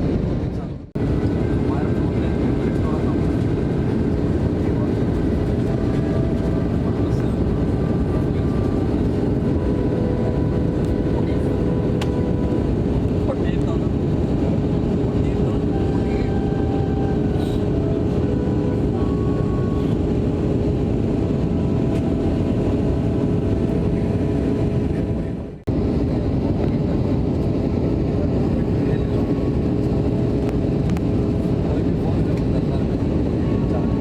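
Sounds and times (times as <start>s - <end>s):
airliner cabin engine roar: 0.0s - 34.0s
constant hum: 0.0s - 34.0s.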